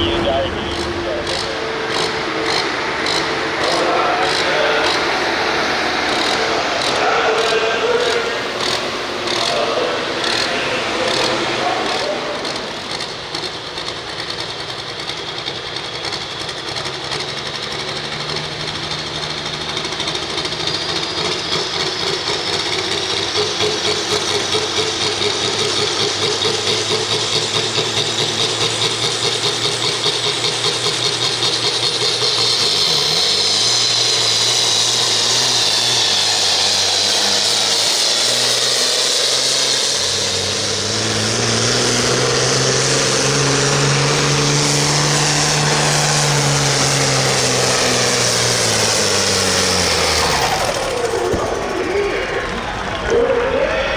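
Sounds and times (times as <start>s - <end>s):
turbo whistle: 0.0s - 13.1s
diesel tractor engine at full throttle: 0.0s - 53.9s.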